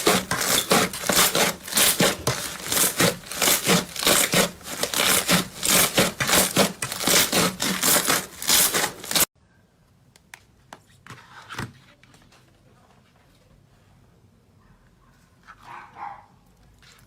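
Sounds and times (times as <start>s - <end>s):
crunchy scraping slime strokes: 0.0s - 9.3s.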